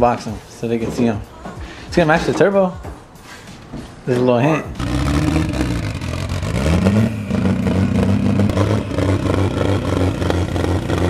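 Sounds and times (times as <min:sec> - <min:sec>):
car engine running at low speed: 0:04.7 - 0:11.0.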